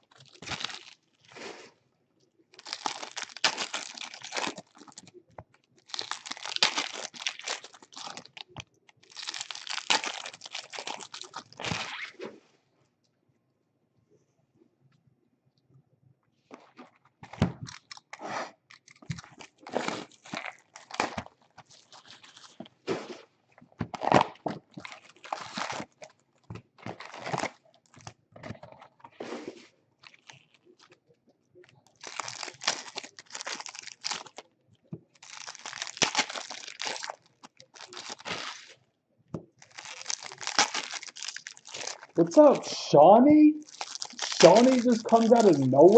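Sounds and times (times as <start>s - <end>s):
card packs torn open: 0.0s - 1.0s, 2.5s - 5.2s, 5.8s - 12.1s, 17.2s - 22.6s, 23.9s - 26.1s, 26.8s - 28.2s, 31.9s - 34.4s, 35.2s - 38.8s, 39.6s - 42.9s, 43.6s - 45.9s
wrappers crinkling: 0.0s - 1.4s, 2.5s - 12.1s, 17.2s - 22.9s, 23.6s - 26.2s, 26.8s - 28.2s, 30.0s - 31.0s, 31.6s - 38.8s, 39.5s - 45.9s.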